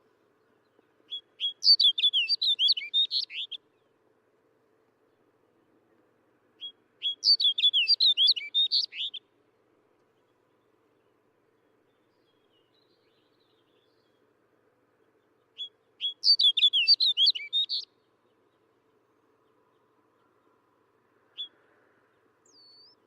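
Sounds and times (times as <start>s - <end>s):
bird warbling song: 0.7s - 3.9s, 6.6s - 9.2s, 15.0s - 20.6s, 21.3s - 21.7s, 22.4s - 23.0s.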